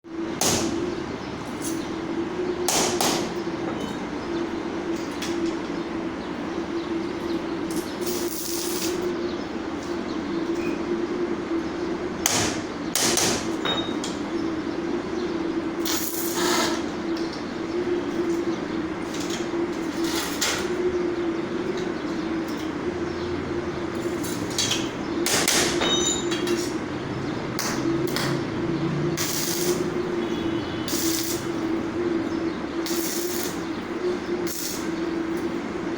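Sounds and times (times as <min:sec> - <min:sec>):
welding machine humming: 0:00.2 - 0:35.9
welding arc crackling: 0:07.0 - 0:09.1, 0:15.6 - 0:25.8, 0:26.4 - 0:35.9.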